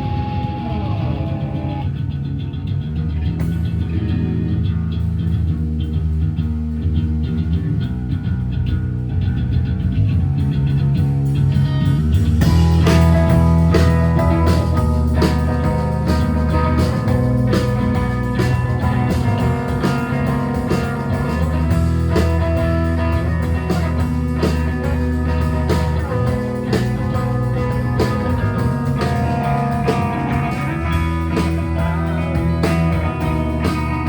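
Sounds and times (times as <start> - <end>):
live rock band playing: 0.0 - 1.9, 11.6 - 34.0
guitar: 0.0 - 34.0.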